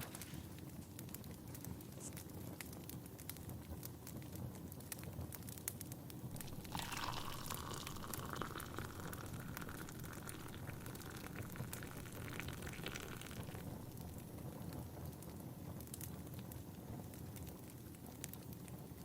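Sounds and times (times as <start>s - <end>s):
wood fire crackling: 0.0s - 19.0s
tea pouring into a cup: 6.4s - 14.6s.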